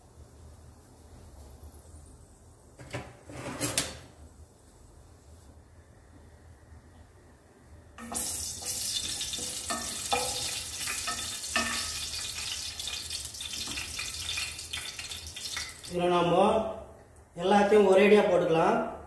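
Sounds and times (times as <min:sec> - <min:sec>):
oil sizzling in a pan: 0:08.0 - 0:15.9.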